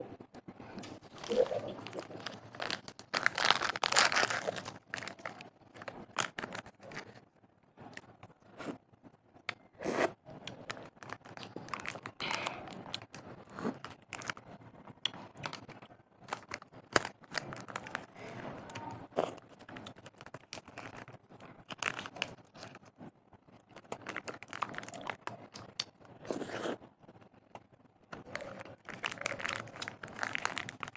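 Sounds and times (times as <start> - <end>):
crunchy chewing: 0.8 - 7.2, 23.6 - 26.9, 28.2 - 30.9
snack packaging crinkling and tearing: 0.8 - 7.2, 10.4 - 23.0, 23.6 - 26.8, 28.1 - 30.9.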